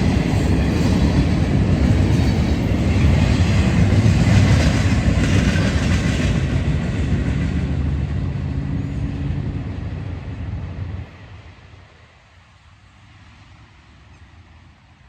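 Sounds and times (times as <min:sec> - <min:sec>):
train wheels clattering on track: 0:00.0 - 0:10.1
train engine hum: 0:00.0 - 0:15.0.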